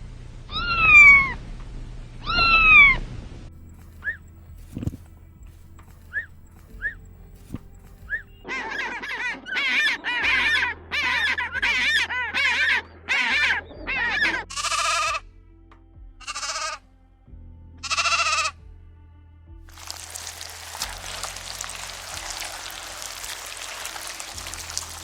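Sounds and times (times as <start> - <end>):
background music: 10.3 - 25.0
livestock bleating: 14.5 - 15.1, 16.2 - 16.8, 17.8 - 18.5.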